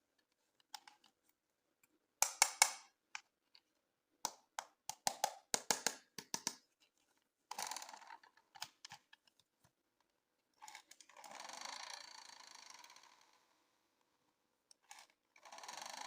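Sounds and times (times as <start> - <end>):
plastic packaging clicks and taps: 2.2 - 2.9, 4.2 - 6.7.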